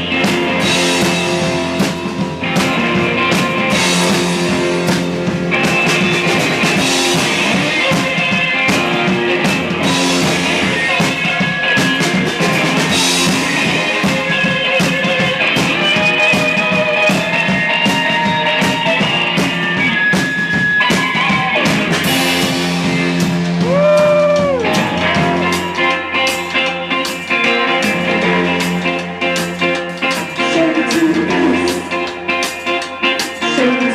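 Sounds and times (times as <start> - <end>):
drum kit hits: 0.0 - 26.5
electric guitar: 0.0 - 33.9.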